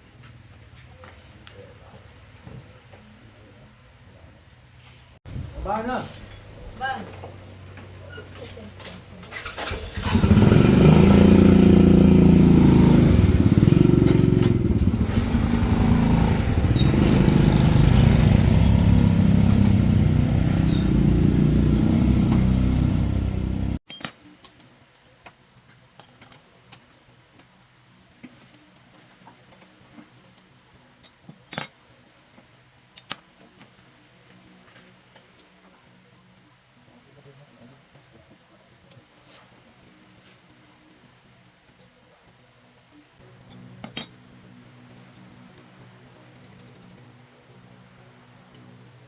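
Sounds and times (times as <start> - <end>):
vehicle engine running: 9.6 - 23.8.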